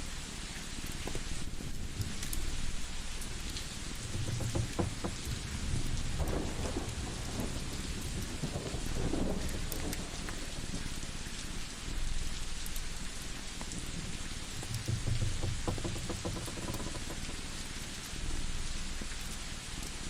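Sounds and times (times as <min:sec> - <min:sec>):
crackling wood fire: 0:00.0 - 0:20.0
steady hiss: 0:00.0 - 0:20.0.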